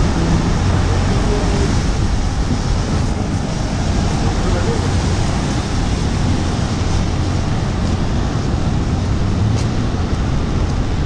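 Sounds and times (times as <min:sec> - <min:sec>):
steady rain: 0:00.0 - 0:11.0
traffic on wet road: 0:00.0 - 0:11.0.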